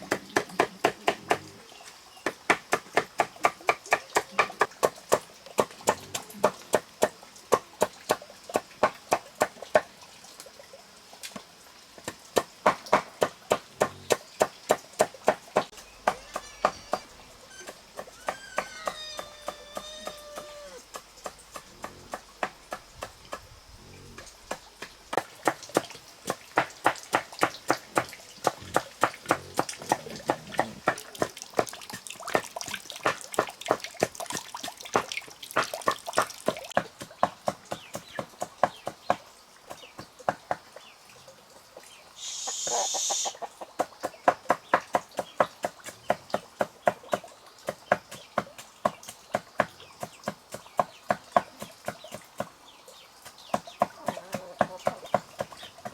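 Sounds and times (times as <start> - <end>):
brief hiss: 42.2 - 43.4.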